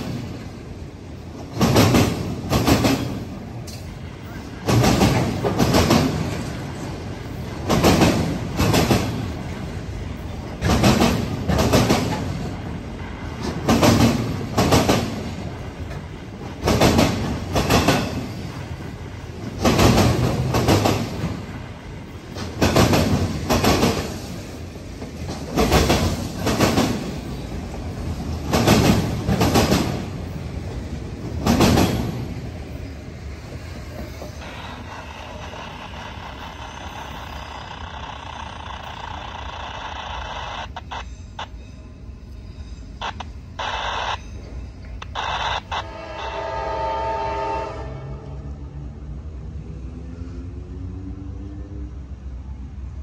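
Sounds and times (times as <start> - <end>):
rumble of train cars: 0.0 - 53.0
train wheels clacking over rail joint: 1.4 - 4.0, 13.3 - 18.3.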